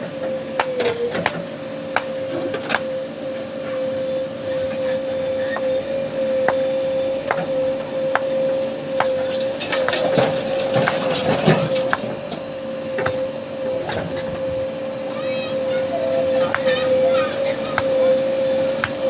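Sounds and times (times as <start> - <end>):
loader motor whine: 0.0 - 19.0.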